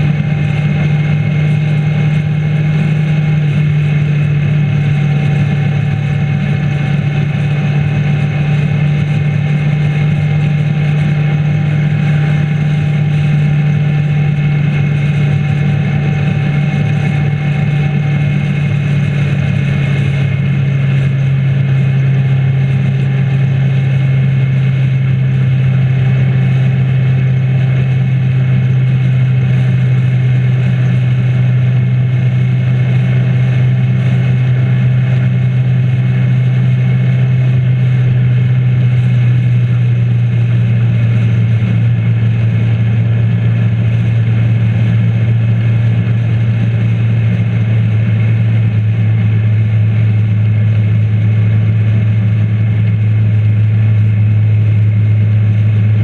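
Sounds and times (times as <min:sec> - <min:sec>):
motorcycle engine droning: 0:00.0 - 0:56.0
road noise: 0:00.0 - 0:56.0.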